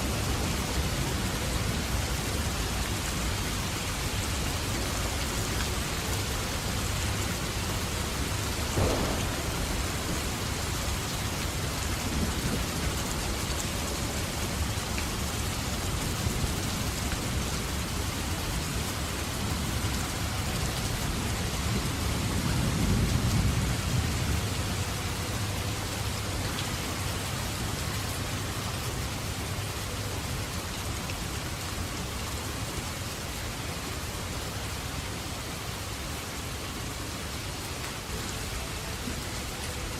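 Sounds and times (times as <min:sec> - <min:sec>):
steady rain: 0:00.0 - 0:39.9
rolling thunder rumble: 0:08.4 - 0:13.4
thunder crack: 0:08.7 - 0:12.6.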